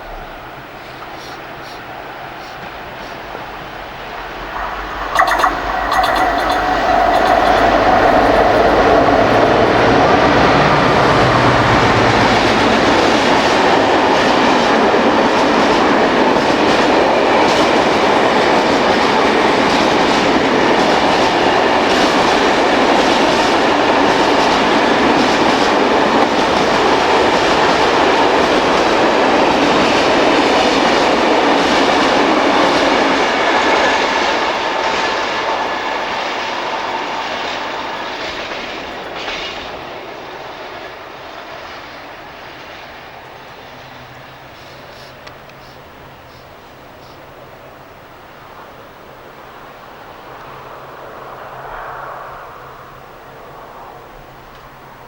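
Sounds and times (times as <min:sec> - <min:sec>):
diesel locomotive engine: 0:00.0 - 0:51.7
freight wagons rolling on rails: 0:04.2 - 0:13.0.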